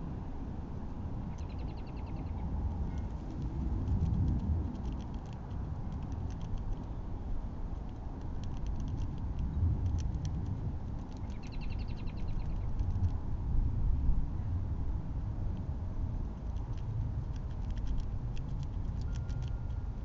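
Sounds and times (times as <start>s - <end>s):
steady low rumble: 0.0s - 20.0s
rapid chirping trill: 11.2s - 12.8s.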